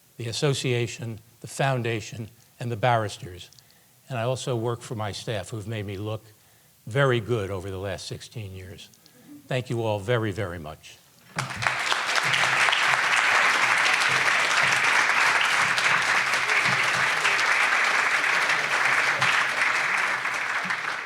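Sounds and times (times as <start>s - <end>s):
audience applauding: 11.3s - 21.0s.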